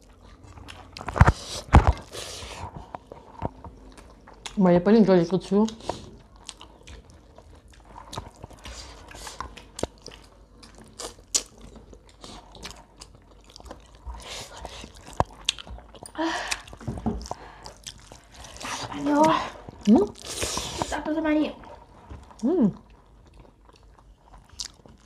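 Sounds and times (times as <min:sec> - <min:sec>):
person chewing and lip-smacking: 0:00.0 - 0:04.6, 0:05.7 - 0:20.9, 0:22.2 - 0:25.0
small clicks and crunches: 0:00.4 - 0:02.1.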